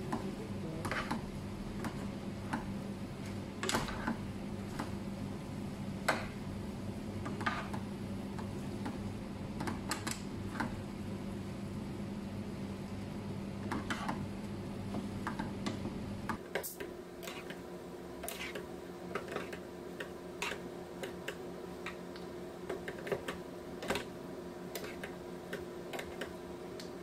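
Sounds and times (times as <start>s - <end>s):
steady hum: 0.0s - 27.0s
spatula scraping nonstick pan: 17.2s - 17.6s, 18.2s - 19.6s.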